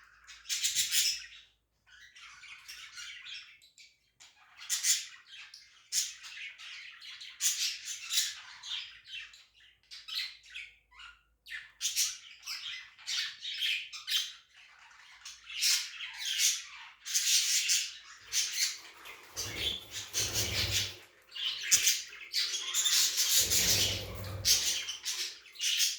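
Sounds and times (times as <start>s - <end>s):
budgerigars chattering: 15.5s - 25.9s.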